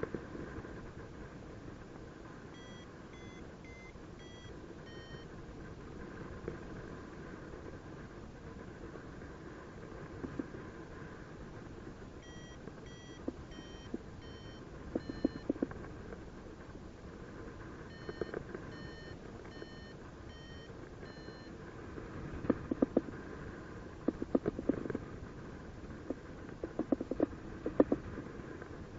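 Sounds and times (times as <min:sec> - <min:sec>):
variometer beeping: 0:02.5 - 0:05.3, 0:12.2 - 0:15.7, 0:17.9 - 0:21.5.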